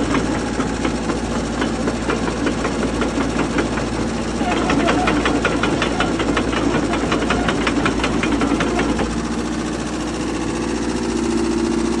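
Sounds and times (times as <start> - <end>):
excavator diesel engine running: 0.0 - 12.0
regular engine ticking: 0.0 - 12.0.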